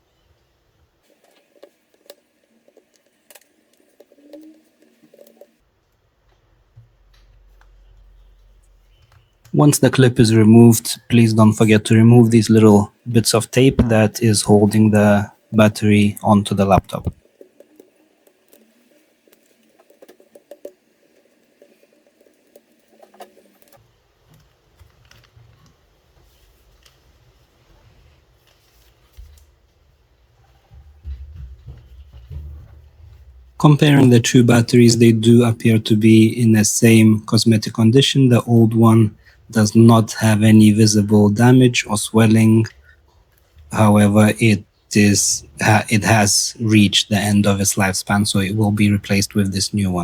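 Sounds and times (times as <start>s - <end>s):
low steady background noise: 0.0s - 50.0s
small clicks and scratches: 1.0s - 9.6s, 16.8s - 29.8s.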